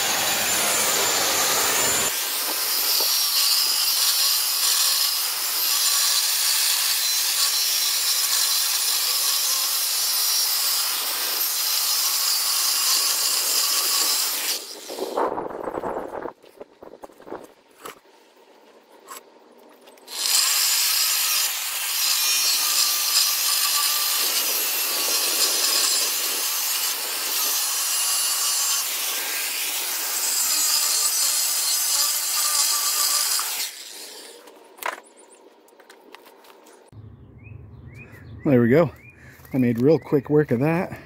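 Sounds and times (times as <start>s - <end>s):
abrasive saw cutting steel: 0.0s - 15.2s, 20.1s - 34.5s.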